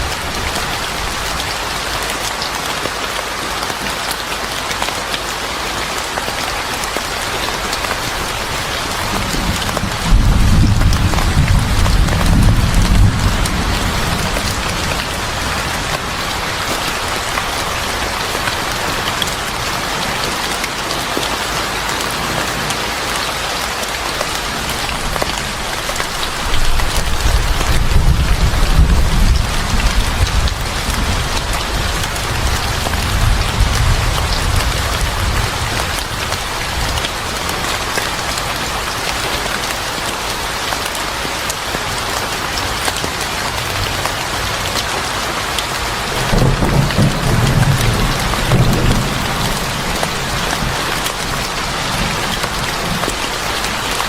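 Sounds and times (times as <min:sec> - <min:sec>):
steady rain falling: 0:00.0 - 0:54.0
thunder rumbling: 0:08.2 - 0:18.9, 0:26.3 - 0:36.9, 0:46.1 - 0:53.9.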